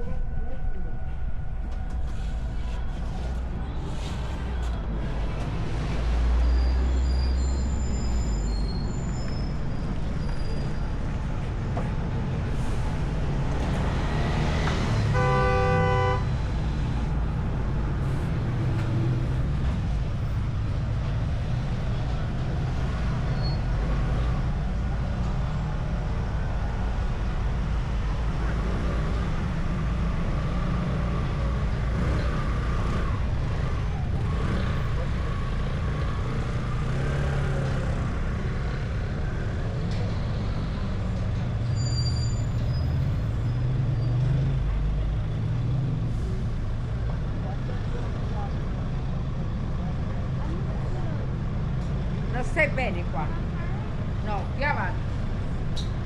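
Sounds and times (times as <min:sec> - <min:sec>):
car engine and road noise: 0:00.0 - 0:56.0
vehicle horn toot: 0:15.0 - 0:16.4.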